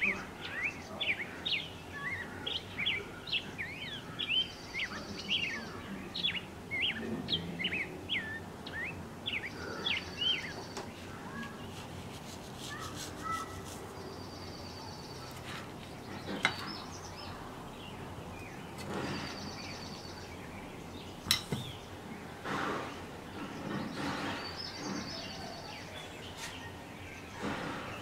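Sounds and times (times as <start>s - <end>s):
small birds chirping: 0.0s - 28.0s
soft rustling of breadcrumbs: 11.3s - 16.1s.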